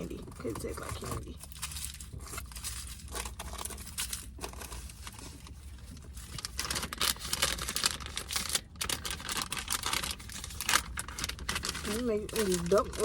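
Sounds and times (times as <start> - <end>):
plastic wrappers crinkling: 0.0 - 13.0.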